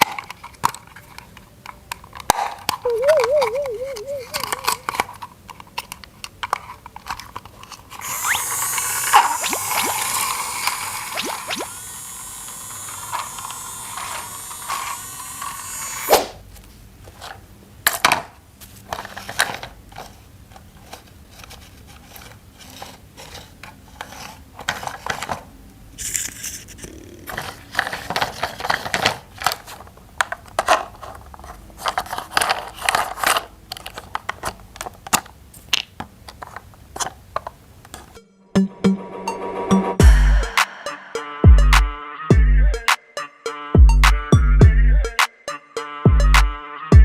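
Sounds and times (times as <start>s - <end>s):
plastic toy parts clicking: 0.0s - 11.6s, 26.0s - 38.1s
steady sound: 9.0s - 14.7s, 38.2s - 42.8s.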